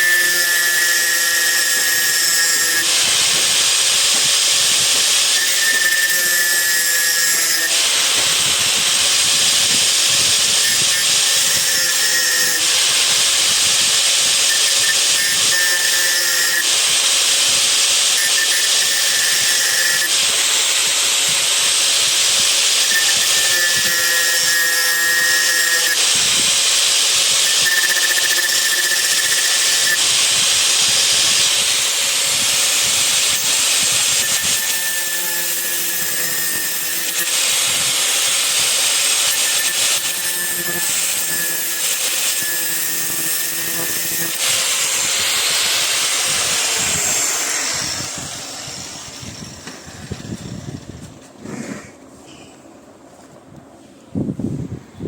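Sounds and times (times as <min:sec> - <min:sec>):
motor whine: 0:42.4 - 0:51.2.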